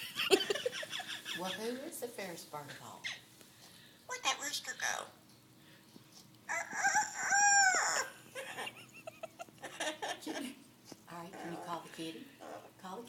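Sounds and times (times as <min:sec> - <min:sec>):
soft broken parrot calls: 0:06.5 - 0:08.1
parrot crowing like a rooster: 0:06.5 - 0:08.2.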